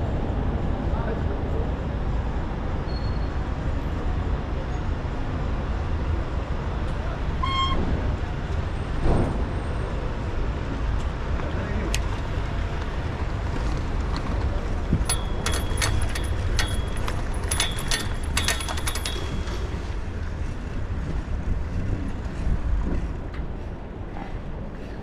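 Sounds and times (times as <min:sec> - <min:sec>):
low rumble of city traffic: 0:00.0 - 0:25.0
sharp metallic clicks with ringing: 0:15.1 - 0:19.5.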